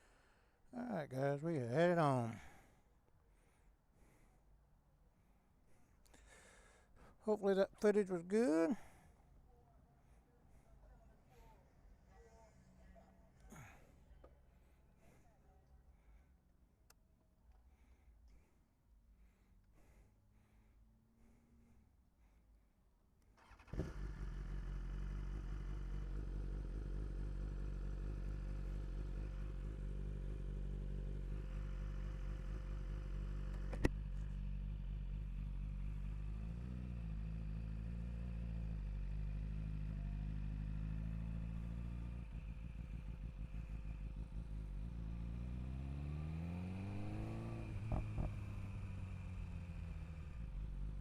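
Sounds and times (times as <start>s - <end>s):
motorcycle engine starting and idling: 23.2s - 51.0s.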